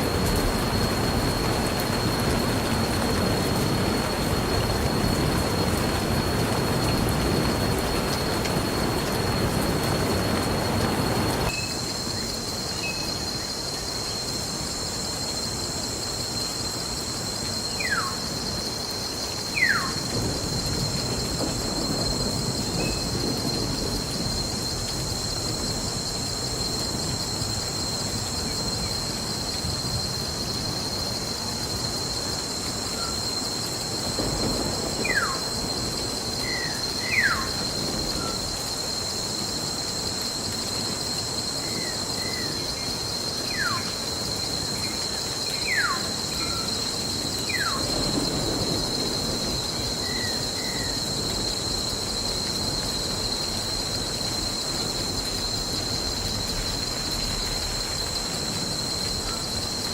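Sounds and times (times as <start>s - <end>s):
steady rain: 0.0s - 59.9s
thunder rumbling: 20.0s - 30.1s, 33.8s - 39.0s, 46.6s - 59.9s.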